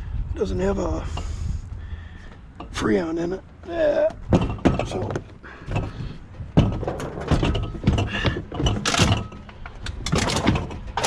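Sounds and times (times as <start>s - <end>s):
scrap items knocking and rattling: 4.3s - 11.0s.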